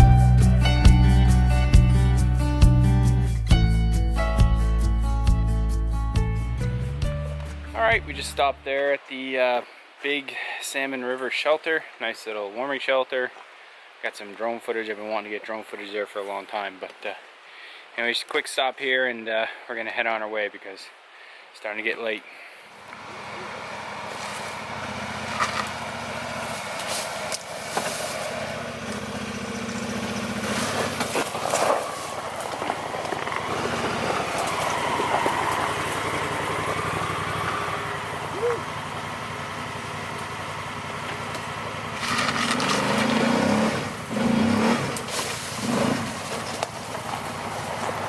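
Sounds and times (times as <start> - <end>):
atv engine running: 0.0 - 8.6, 22.7 - 48.0.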